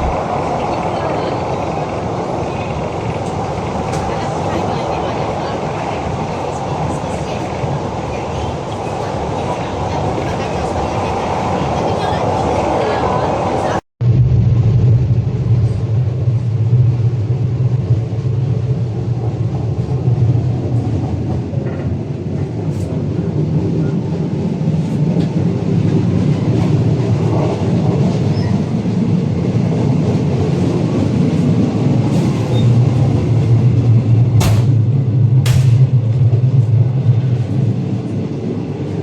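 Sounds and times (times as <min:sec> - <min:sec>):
train rolling on rails: 0:00.0 - 0:39.0.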